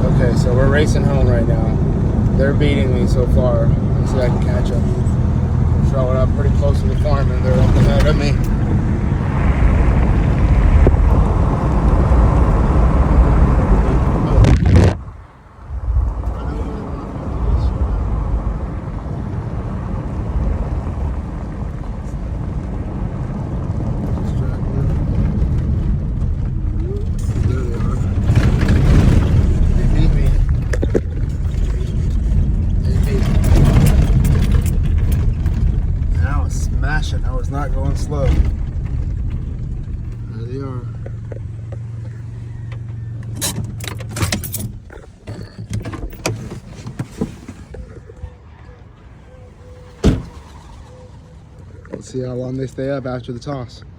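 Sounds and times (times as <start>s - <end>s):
car engine and road rumble: 0.0s - 53.9s
sharp clicks and clunks: 24.9s - 40.3s, 40.9s - 48.2s.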